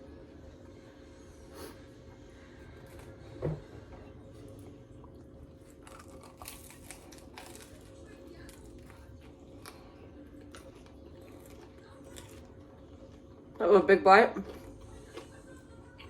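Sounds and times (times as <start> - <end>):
crackly chewing and crunching: 2.3 - 3.4, 4.0 - 13.6, 14.2 - 16.0.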